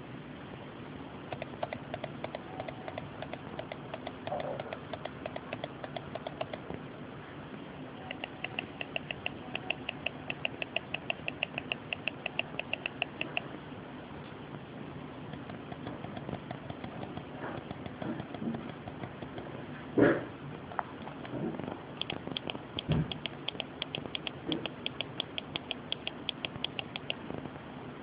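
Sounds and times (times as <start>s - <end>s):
steady low hum: 0.0s - 28.0s
rapid mechanical clicks: 1.3s - 6.8s, 8.0s - 13.5s, 15.3s - 19.6s, 21.0s - 27.2s.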